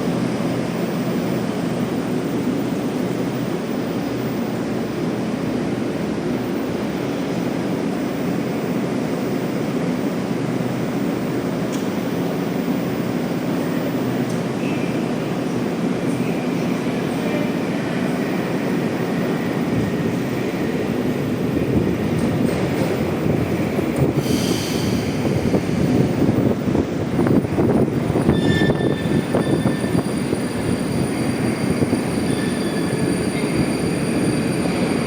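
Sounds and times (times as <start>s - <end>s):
train wheels rumbling on track: 0.0s - 35.0s
wheel squeal: 28.2s - 35.0s.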